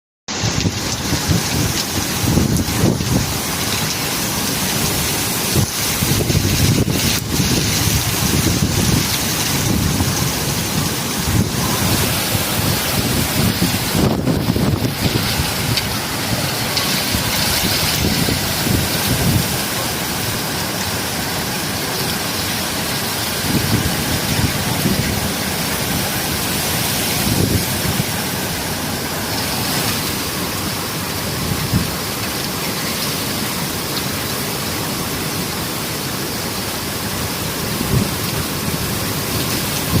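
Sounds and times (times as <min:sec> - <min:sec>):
rain falling: 0:00.3 - 0:40.0
wind rumble on microphone: 0:00.4 - 0:20.3, 0:23.3 - 0:28.4, 0:31.2 - 0:32.3, 0:37.7 - 0:40.0.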